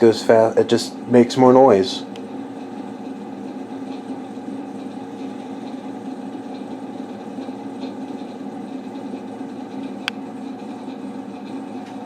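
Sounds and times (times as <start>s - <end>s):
ceiling fan drone: 0.0s - 12.0s
faint fan ticks: 0.0s - 12.0s.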